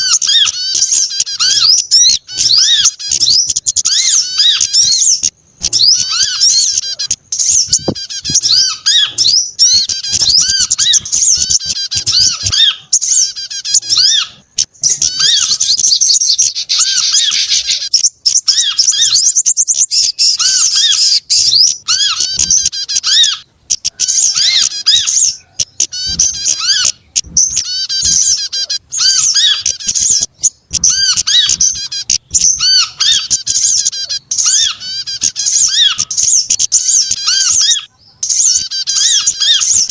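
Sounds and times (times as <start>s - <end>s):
songbird calls: 0.0s - 39.9s.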